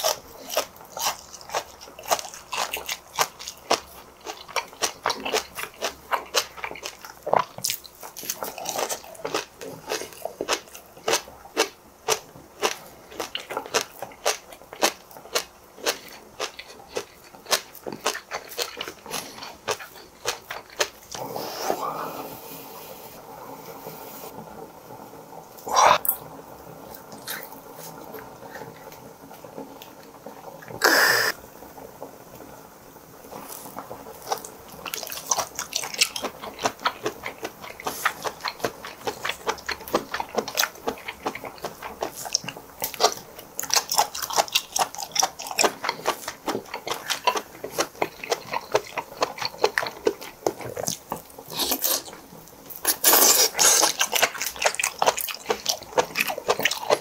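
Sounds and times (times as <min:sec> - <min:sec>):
wet chewing and smacking: 0:00.0 - 0:21.2, 0:33.4 - 0:57.0.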